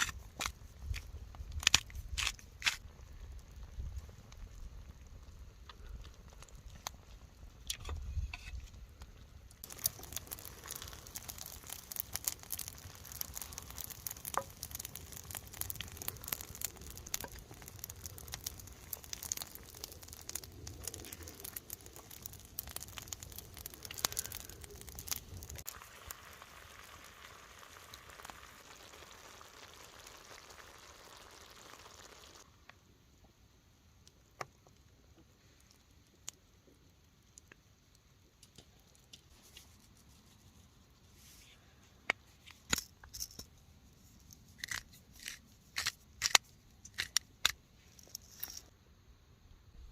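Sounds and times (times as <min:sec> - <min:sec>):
campfire pops: 0:00.0 - 0:32.8, 0:34.0 - 0:39.3, 0:42.0 - 0:43.5, 0:44.2 - 0:48.7
food sizzling in a skillet: 0:25.6 - 0:32.4.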